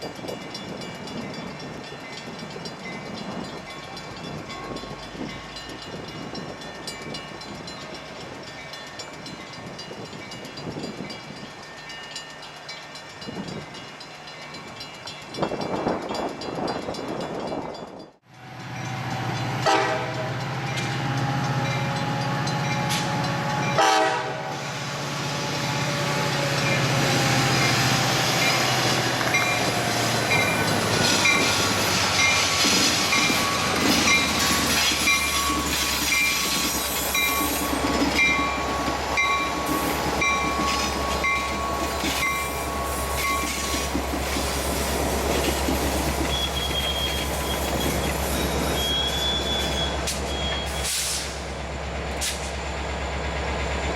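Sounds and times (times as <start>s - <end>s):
train rumbling past: 0.0s - 53.9s
train horn: 18.9s - 20.5s, 22.3s - 24.6s.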